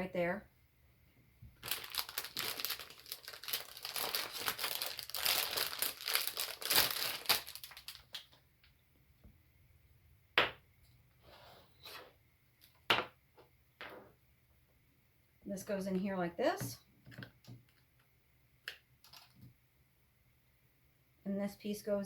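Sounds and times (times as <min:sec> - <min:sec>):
packaging crinkling and tearing: 0:01.6 - 0:08.4.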